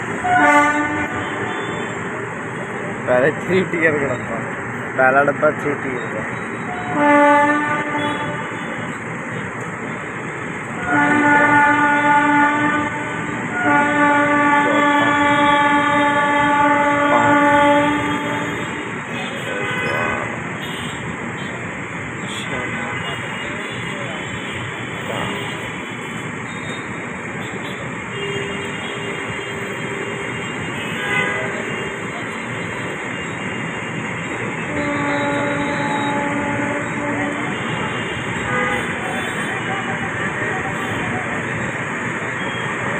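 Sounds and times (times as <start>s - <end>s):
moving train noise: 0.0s - 42.9s
train horn blast: 0.1s - 2.0s, 6.7s - 8.9s, 10.8s - 21.0s, 27.4s - 33.9s, 34.5s - 41.2s.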